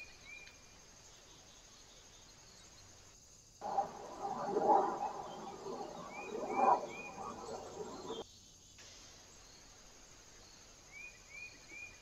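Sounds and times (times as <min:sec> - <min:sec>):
high bird chirps: 0:03.6 - 0:08.2
faint hiss: 0:06.8 - 0:12.0.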